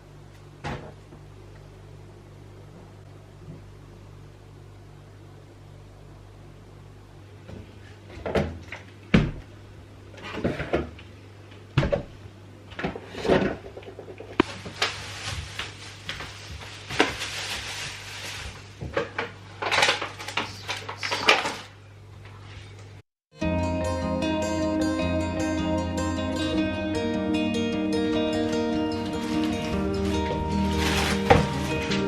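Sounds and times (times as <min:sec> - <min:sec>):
rustling: 0:14.4 - 0:18.8, 0:28.9 - 0:32.0.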